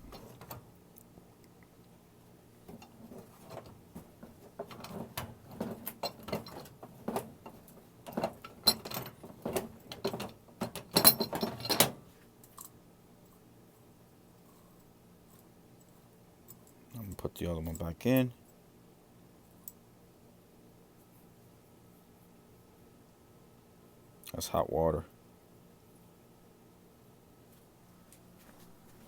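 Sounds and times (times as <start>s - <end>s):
metallic clicking and clanking of tools: 2.7s - 12.8s.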